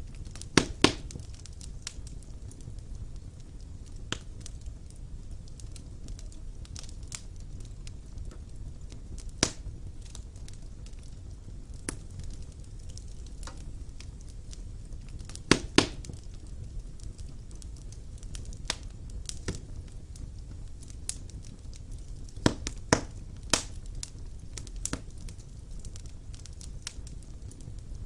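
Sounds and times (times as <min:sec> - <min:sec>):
fire crackles and pops: 0:00.0 - 0:28.0
low rumble of flames: 0:00.0 - 0:28.0.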